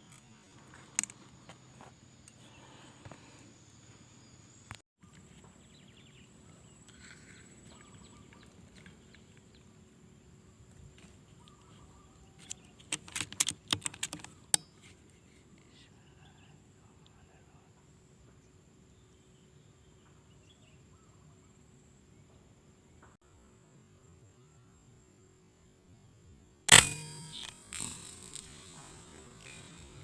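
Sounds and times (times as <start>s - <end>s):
faint bird chirps: 1.8s - 10.3s, 11.0s - 12.9s, 15.1s - 23.4s
sharp crackling clicks: 12.4s - 14.7s, 26.7s - 30.0s
high-pitched insect drone: 26.7s - 30.0s.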